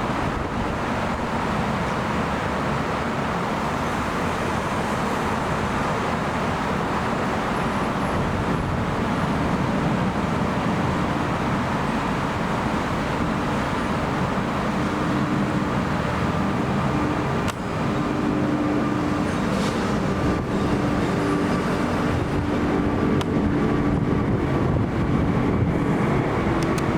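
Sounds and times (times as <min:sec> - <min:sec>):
jet engine roar: 0:00.0 - 0:26.9.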